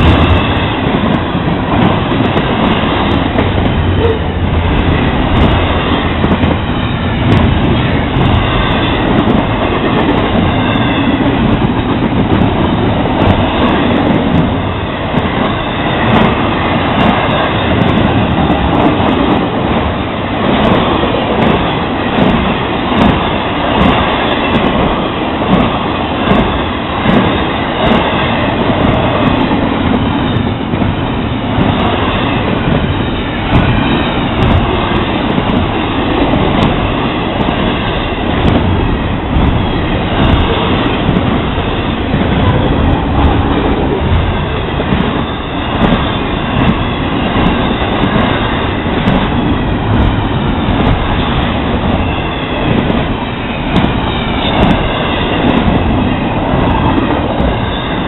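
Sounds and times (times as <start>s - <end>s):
freight train wheels rumbling: 0.0s - 58.0s
wheels clacking on rail: 0.0s - 58.0s.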